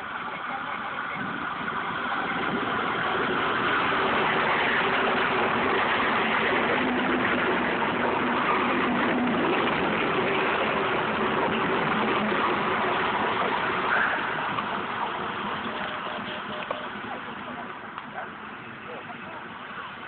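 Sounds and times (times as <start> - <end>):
passenger train rumbling: 0.0 - 20.0.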